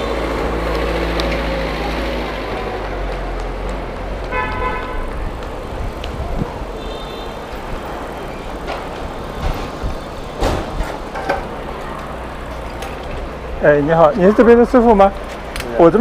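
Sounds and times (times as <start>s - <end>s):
street traffic: 0.0s - 16.0s
vehicle horn toot: 4.3s - 5.1s, 6.8s - 7.4s.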